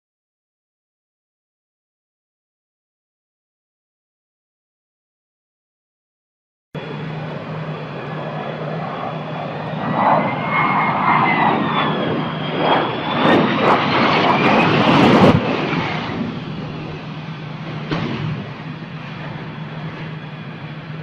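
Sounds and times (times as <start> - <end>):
aircraft engine rush: 6.8 - 21.0
turbine whine: 6.8 - 21.0.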